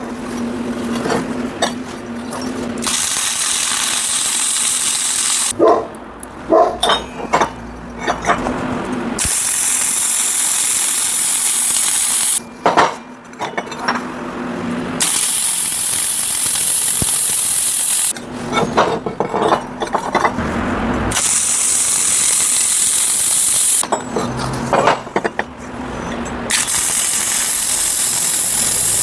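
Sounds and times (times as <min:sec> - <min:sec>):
arc welding crackling hiss: 0:02.8 - 0:05.6, 0:09.2 - 0:12.4, 0:15.0 - 0:18.1, 0:21.2 - 0:23.8, 0:26.5 - 0:29.0
metal clinks and knocks: 0:06.6 - 0:09.0, 0:12.4 - 0:14.1, 0:18.4 - 0:20.4, 0:23.8 - 0:26.5.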